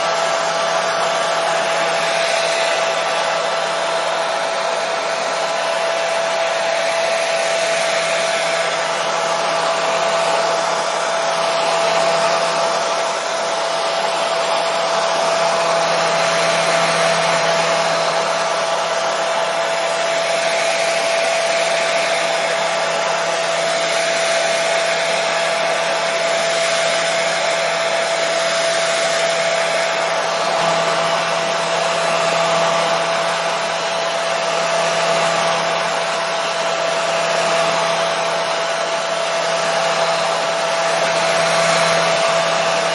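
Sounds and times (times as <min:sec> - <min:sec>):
hair dryer running: 0:00.0 - 0:42.9.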